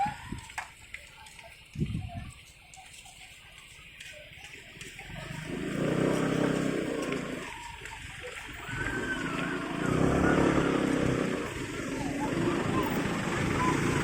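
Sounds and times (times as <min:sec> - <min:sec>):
vehicle engines going by: 0:00.0 - 0:14.0.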